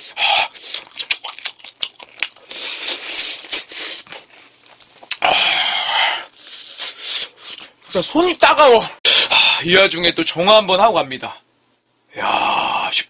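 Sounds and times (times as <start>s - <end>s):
biting and chewing food: 0.0s - 5.3s
wet mouth clicks: 0.4s - 4.1s, 5.0s - 5.3s.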